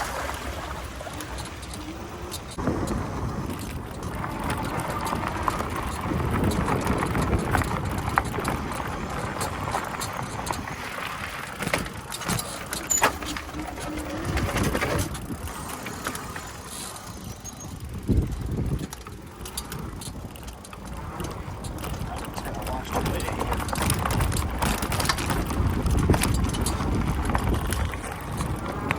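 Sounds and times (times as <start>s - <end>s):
bike tyre and rattle noise: 0.0s - 28.9s.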